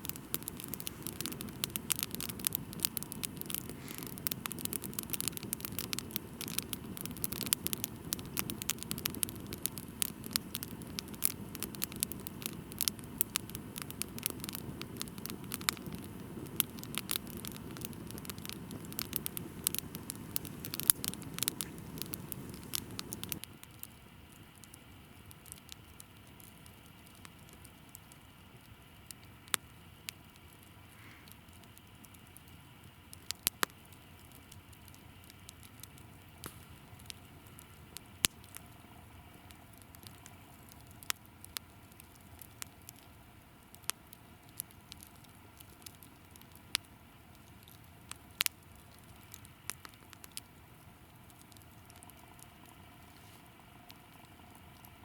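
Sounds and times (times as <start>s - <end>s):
dense crackling clicks: 0.0s - 24.8s.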